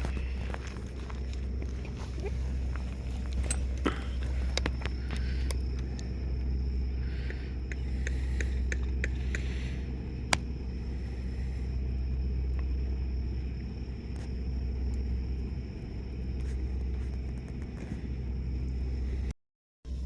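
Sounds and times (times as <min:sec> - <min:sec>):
camping gear clicks and knocks: 0:00.0 - 0:06.0
steady low rumble: 0:00.0 - 0:20.0.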